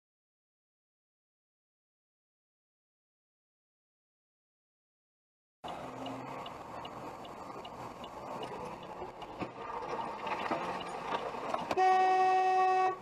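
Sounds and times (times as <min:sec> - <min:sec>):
light regular ticking: 0:05.6 - 0:11.7
car road and engine noise: 0:05.6 - 0:13.0.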